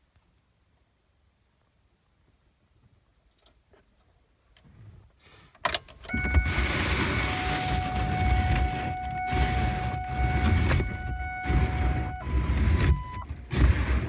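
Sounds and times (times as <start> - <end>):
diesel engine cranking and idling: 5.9 - 14.0
steady high tone: 6.1 - 13.3.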